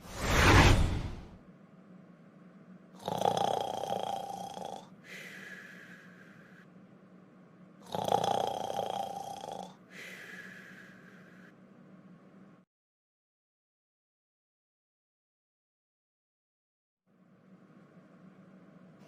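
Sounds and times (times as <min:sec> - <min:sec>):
cartoon snoring: 0:03.0 - 0:06.5, 0:07.8 - 0:11.5.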